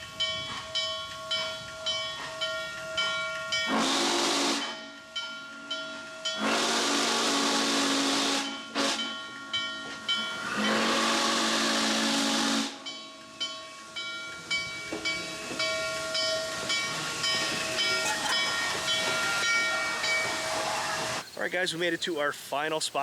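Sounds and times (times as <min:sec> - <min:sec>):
steam whistle blowing: 0:02.9 - 0:05.0, 0:06.3 - 0:09.2, 0:10.4 - 0:13.0
bell ringing: 0:13.0 - 0:20.6
steam hissing: 0:13.8 - 0:23.0.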